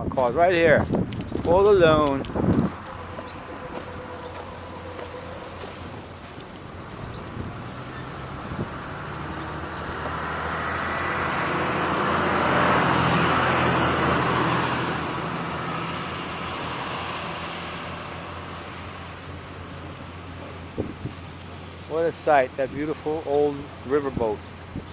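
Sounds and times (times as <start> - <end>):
vehicle driving past: 2.6 - 21.6.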